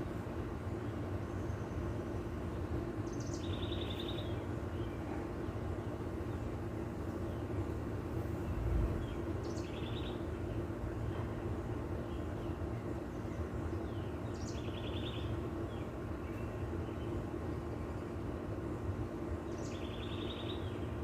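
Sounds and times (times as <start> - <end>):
low background rumble: 0.0 - 21.0.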